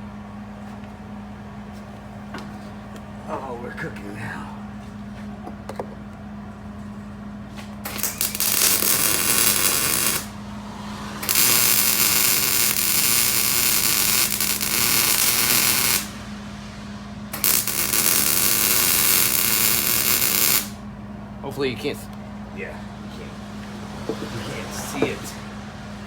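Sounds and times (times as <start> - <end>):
welder buzzing crackle: 7.8 - 10.4, 11.1 - 16.4, 17.3 - 20.8.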